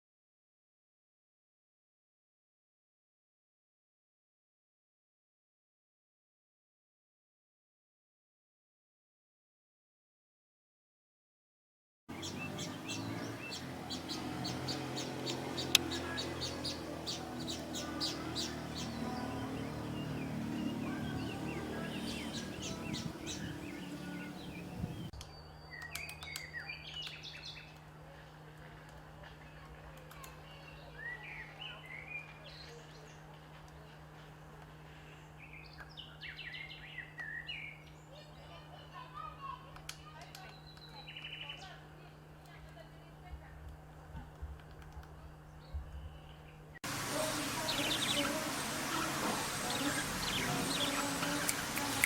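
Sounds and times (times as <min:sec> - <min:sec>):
songbirds chirping: 0:12.1 - 0:39.0, 0:40.0 - 0:43.0, 0:45.1 - 0:52.0.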